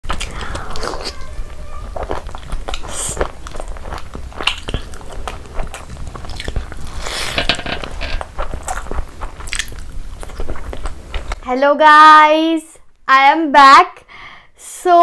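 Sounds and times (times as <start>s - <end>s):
person chewing with wet smacks: 1.9s - 7.3s, 8.2s - 11.4s.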